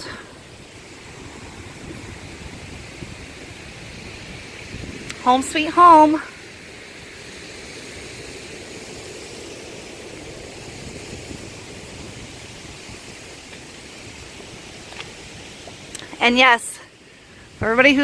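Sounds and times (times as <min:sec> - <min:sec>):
waterfall rushing water: 0:00.0 - 0:18.0.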